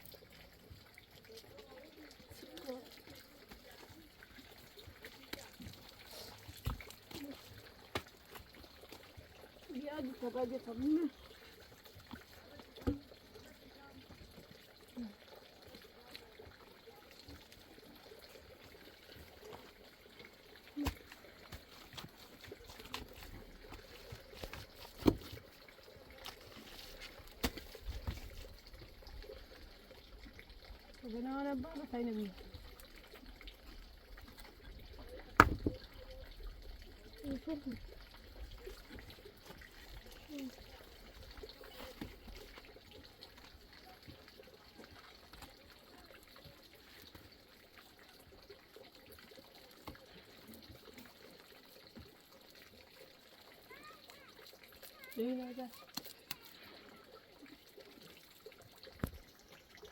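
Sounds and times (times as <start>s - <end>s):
faint trickling water: 0.0s - 59.9s
small ticks and clicks: 54.8s - 56.6s.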